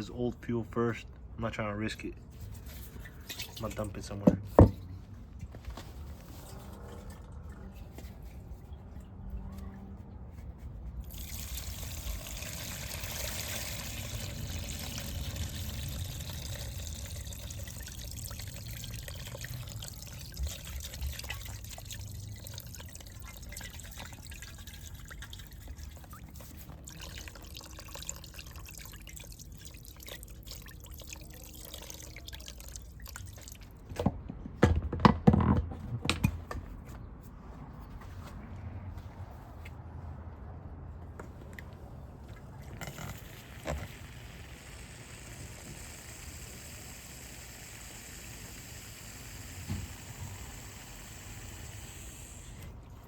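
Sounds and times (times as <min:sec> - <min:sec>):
gasoline trickling from tank: 0:02.3 - 0:09.2, 0:10.9 - 0:34.0, 0:42.2 - 0:53.0.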